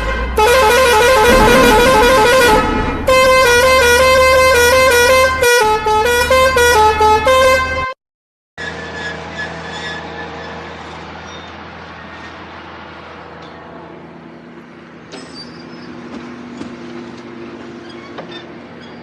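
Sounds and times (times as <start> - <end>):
musical vehicle horn tune: 0.0 - 8.0.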